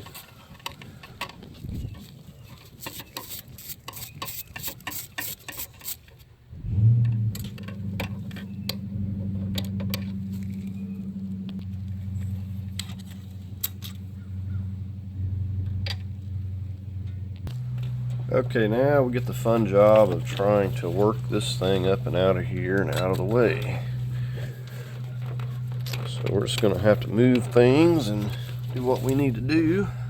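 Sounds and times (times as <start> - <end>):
steady low hum: 6.5 - 30.0.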